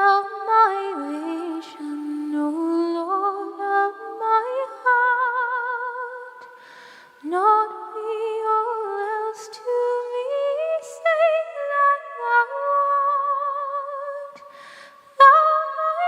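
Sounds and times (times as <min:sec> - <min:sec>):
person breathing: 0:06.4 - 0:07.2, 0:14.4 - 0:15.2.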